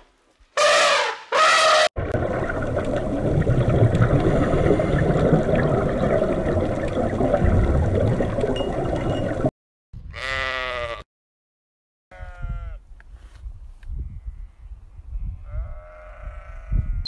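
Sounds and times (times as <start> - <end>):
rushing underwater ambience: 2.0 - 9.5
goat bleat: 10.1 - 11.0, 15.5 - 17.0.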